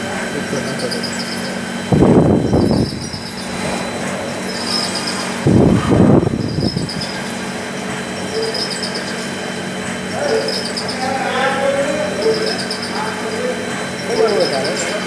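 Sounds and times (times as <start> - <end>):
machine hum: 0.0 - 15.0
short high-pitched rattles: 8.4 - 9.5, 10.3 - 11.5, 12.2 - 15.0.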